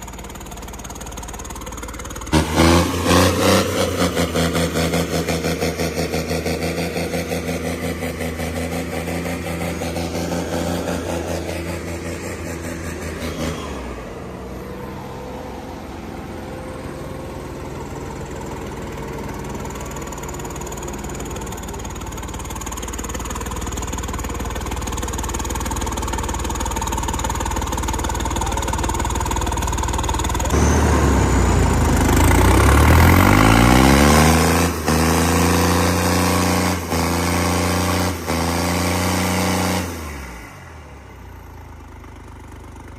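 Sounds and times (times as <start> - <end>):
tractor diesel engine revving: 0.0 - 42.9.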